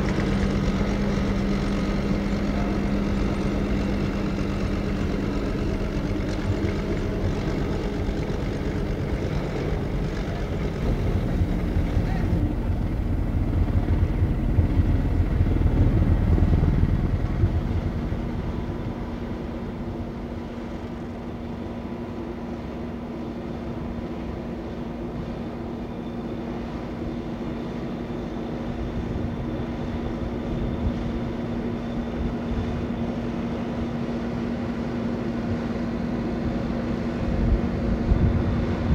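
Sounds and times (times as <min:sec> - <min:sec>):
tractor engine running: 0:00.0 - 0:21.4.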